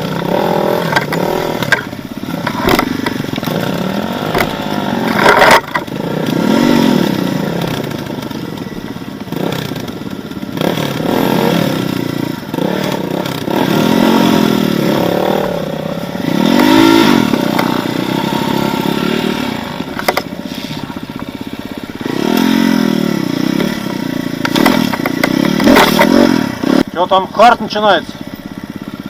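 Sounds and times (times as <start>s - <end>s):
motorcycle engine revving: 0.0s - 29.0s
sharp knocks and clatter: 0.8s - 5.9s, 19.9s - 20.3s, 23.6s - 26.2s.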